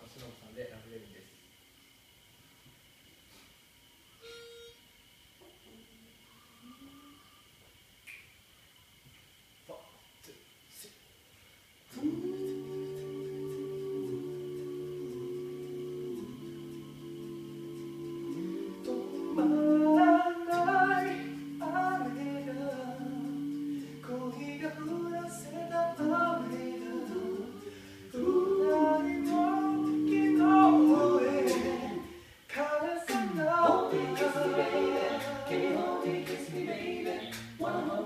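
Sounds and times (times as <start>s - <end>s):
a cappella group singing in harmony: 11.9s - 38.0s.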